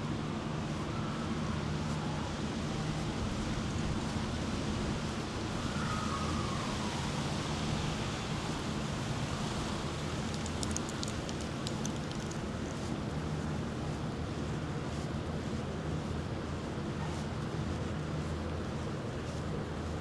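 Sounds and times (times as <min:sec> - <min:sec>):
low mechanical hum: 0:00.0 - 0:20.0
faint high ticks: 0:09.3 - 0:13.0.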